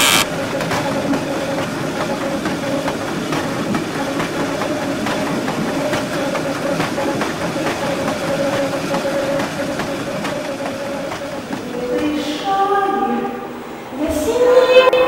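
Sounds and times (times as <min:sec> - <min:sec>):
harsh rattling noise: 0:00.0 - 0:12.0
faint irregular clicks: 0:00.0 - 0:12.1
train rumbling on rails: 0:00.0 - 0:15.0.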